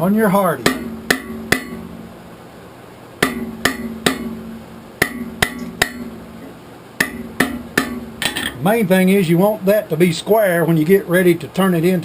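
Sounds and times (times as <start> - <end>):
anvil ringing: 0.6 - 2.2, 3.2 - 8.6
hammer striking steel on anvil: 0.6 - 2.2, 3.2 - 8.6.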